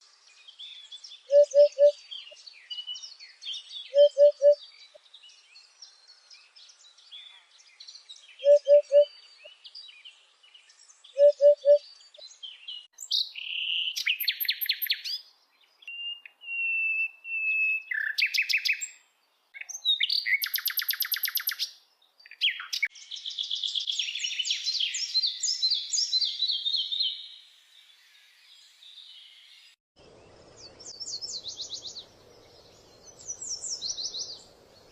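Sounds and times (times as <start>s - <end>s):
high chirping birds: 0.2s - 34.9s
bird trills and whistles: 1.3s - 2.0s, 3.9s - 4.6s, 8.4s - 9.1s, 11.1s - 11.8s, 13.4s - 15.2s, 15.9s - 18.9s, 19.6s - 21.7s.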